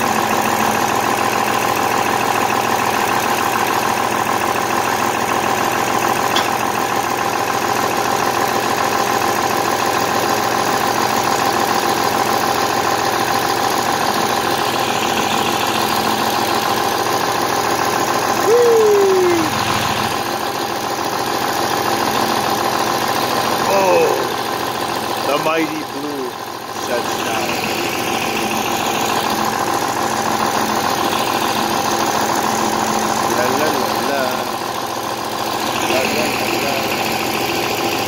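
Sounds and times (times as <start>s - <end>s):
tractor engine idling: 0.0s - 38.0s
whine sliding downward: 18.4s - 19.9s.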